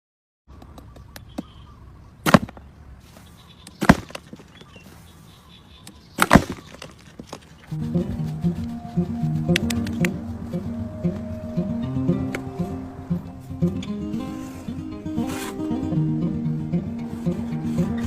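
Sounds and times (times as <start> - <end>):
music: 7.7 - 18.0.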